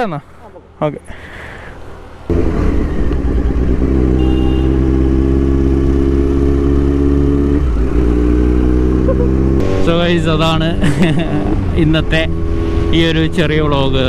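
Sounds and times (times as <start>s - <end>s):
motorcycle engine running: 2.3s - 12.4s.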